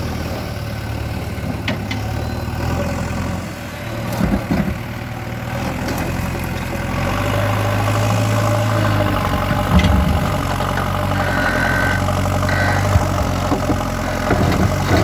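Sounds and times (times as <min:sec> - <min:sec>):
diesel engine running: 0:00.0 - 0:15.0
sharp knocks: 0:09.0 - 0:14.8.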